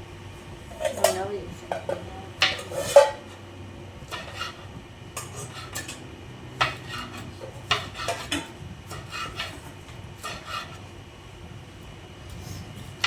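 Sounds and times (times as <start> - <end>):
utensils and dishes clinking: 0.7 - 3.4, 5.2 - 10.8.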